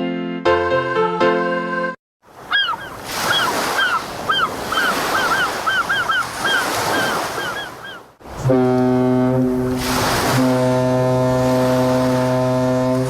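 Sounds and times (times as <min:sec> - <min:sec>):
ocean surf: 0:02.3 - 0:13.0
seagull cries: 0:02.4 - 0:08.1
ship's horn: 0:08.2 - 0:13.0.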